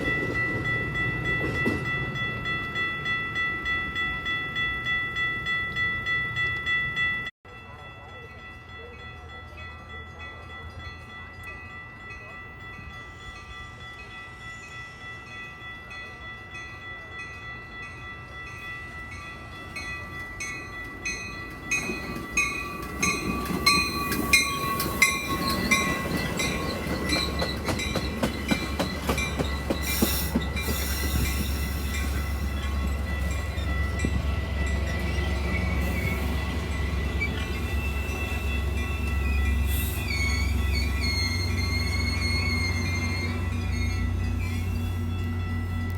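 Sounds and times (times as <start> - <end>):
crossing warning bells ringing: 0.0 - 45.9
train low rumble: 0.0 - 45.9
train wheels rattling over rail joints: 21.4 - 44.9.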